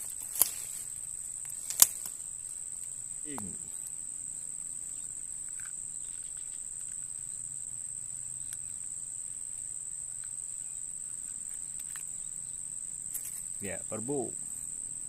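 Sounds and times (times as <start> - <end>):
insects shrilling: 0.0 - 15.0
faint ticks: 1.4 - 4.0, 4.9 - 7.4, 8.4 - 8.8.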